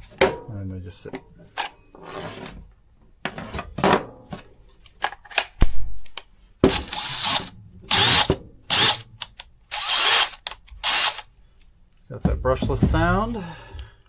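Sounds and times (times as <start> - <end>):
cordless drill motor spinning: 6.7 - 9.0, 9.7 - 11.3.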